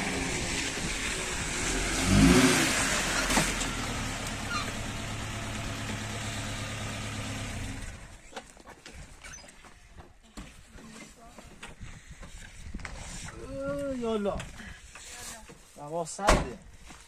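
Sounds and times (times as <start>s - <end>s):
car engine revving and idling: 0.0s - 8.1s.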